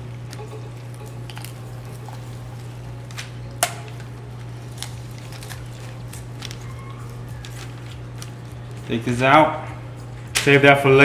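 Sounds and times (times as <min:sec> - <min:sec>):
steady low hum: 0:00.0 - 0:11.0
bone snapping: 0:01.3 - 0:09.0.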